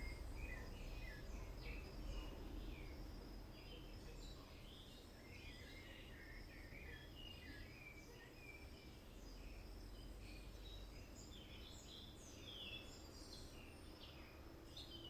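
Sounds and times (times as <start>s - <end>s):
low background rumble: 0.0s - 5.5s
faint birds chirping: 0.0s - 15.0s.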